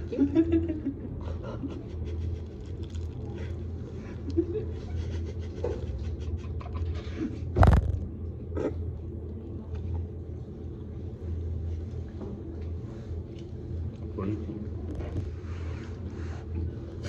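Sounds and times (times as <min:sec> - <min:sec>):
sharp knock: 0:07.6 - 0:08.1
low hum: 0:07.6 - 0:09.5.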